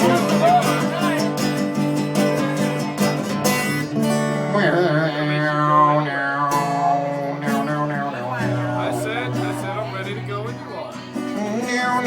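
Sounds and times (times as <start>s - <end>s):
ukulele strumming chords: 0.0s - 5.1s
person singing: 4.1s - 12.0s.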